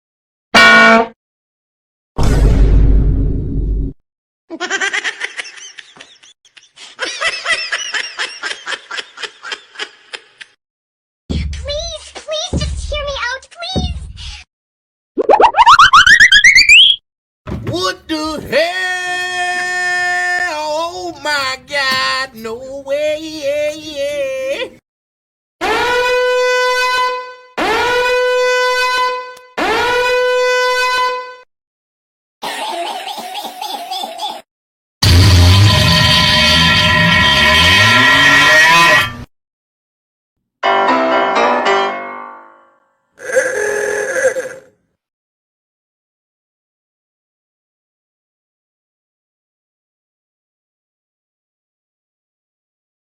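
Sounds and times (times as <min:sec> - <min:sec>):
long horn blasts: 0:00.6 - 0:01.1, 0:25.8 - 0:31.4
high-pitched laughter: 0:04.5 - 0:10.6, 0:32.4 - 0:34.4.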